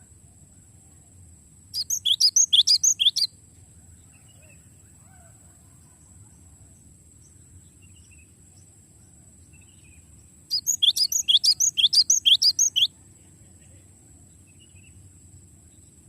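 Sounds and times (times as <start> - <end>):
faint distant chirps: 1.6 - 5.0, 5.6 - 16.0
bird singing fast trill: 1.7 - 3.4, 9.5 - 13.0.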